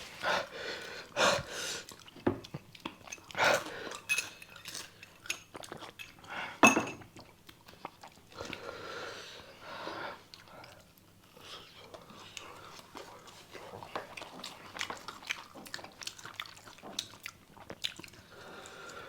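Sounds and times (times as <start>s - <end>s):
people chewing noodles: 0.1s - 6.6s, 7.2s - 19.0s
cutlery clinking against bowls: 4.0s - 7.1s.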